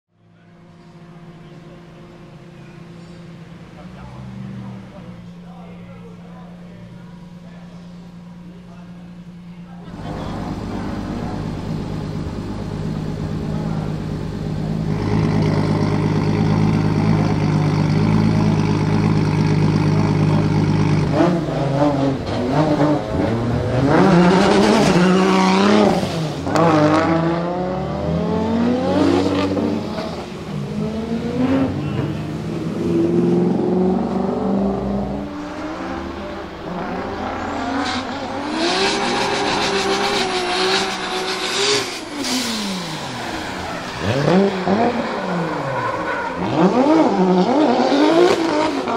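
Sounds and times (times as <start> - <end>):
car engine idling: 0.2 - 26.8
car engine revving and pulling away: 0.4 - 48.9.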